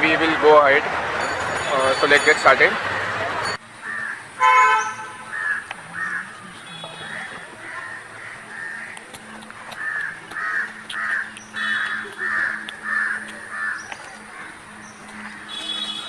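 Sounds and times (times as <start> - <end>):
crows cawing: 3.8 - 4.3, 5.3 - 6.4, 7.1 - 14.6.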